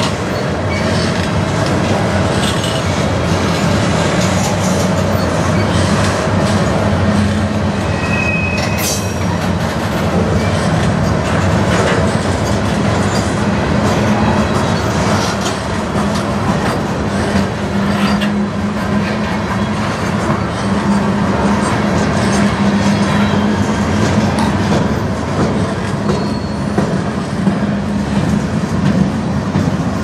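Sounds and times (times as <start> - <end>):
steel wheels rumbling on rail: 0.0 - 30.0
wheel squeal: 4.9 - 6.0, 7.9 - 9.4, 26.0 - 26.8.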